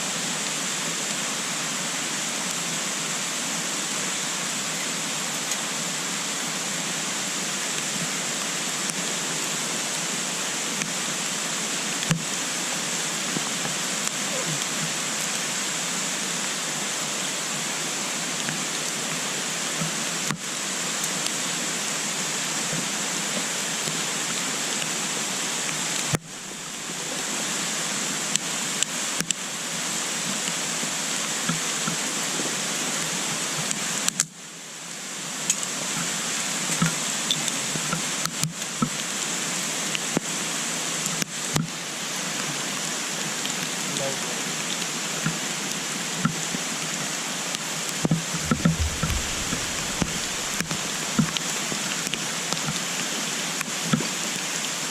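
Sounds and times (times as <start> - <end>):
wood fire hissing and crackling: 5.4 - 54.9
sharp wood cracks: 48.4 - 51.4.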